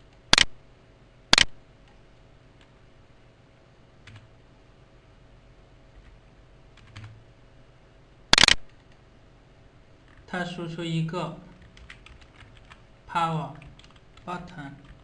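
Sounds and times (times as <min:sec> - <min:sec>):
computer keyboard typing: 0:04.0 - 0:04.3, 0:06.8 - 0:07.2, 0:08.4 - 0:09.0, 0:11.6 - 0:12.8, 0:13.6 - 0:15.0.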